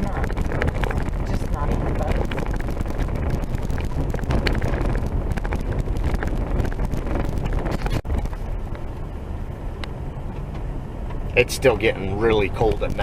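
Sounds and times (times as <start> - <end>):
rattles and knocks: 0.0 - 8.9
wind on microphone: 0.0 - 9.0
vehicle rumbling on dirt road: 0.0 - 13.0.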